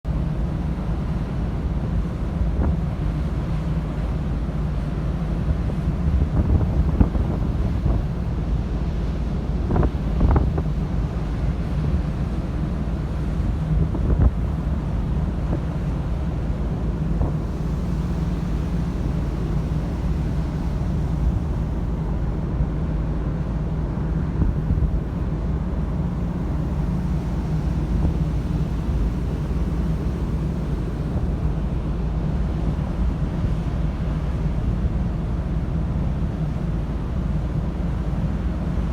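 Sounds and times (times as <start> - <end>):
ferry engine rumble: 0.1 - 38.9
wind buffeting microphone: 5.3 - 35.3.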